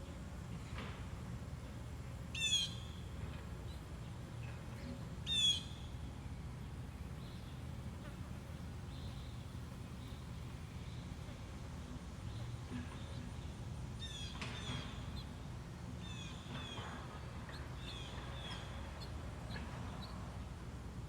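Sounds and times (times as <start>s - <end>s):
songbirds chirping: 1.6s - 21.0s.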